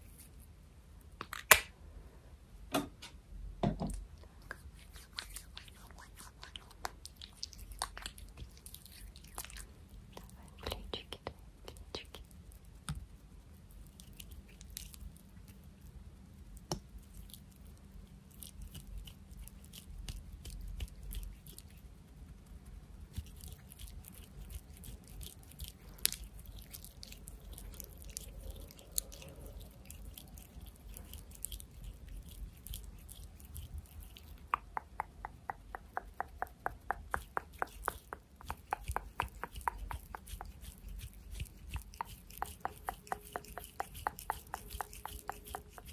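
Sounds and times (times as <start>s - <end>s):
fast run of taps: 34.5s - 45.9s.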